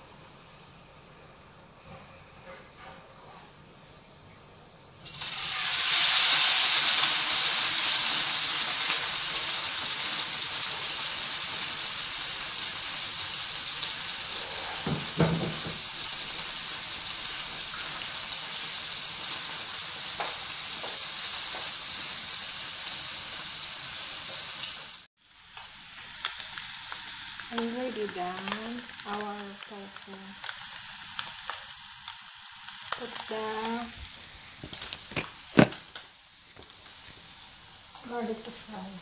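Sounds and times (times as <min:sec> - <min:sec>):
tofu sizzling in hot oil: 0:05.0 - 0:39.0
knock: 0:14.8 - 0:15.8.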